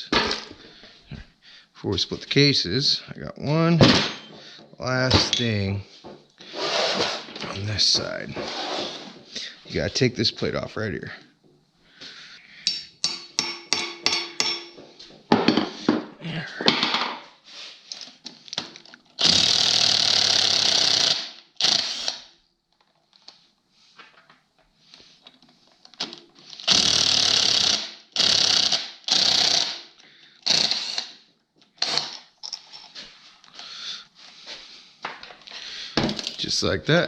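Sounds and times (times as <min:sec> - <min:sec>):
air impact wrench bursts: 0:06.5 - 0:07.3, 0:19.2 - 0:22.3, 0:26.5 - 0:31.1.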